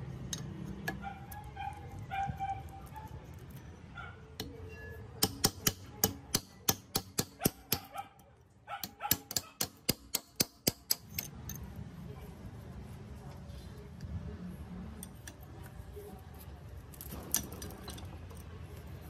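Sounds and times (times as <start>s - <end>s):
hammer striking steel chisel: 4.4s - 7.9s, 8.8s - 11.6s.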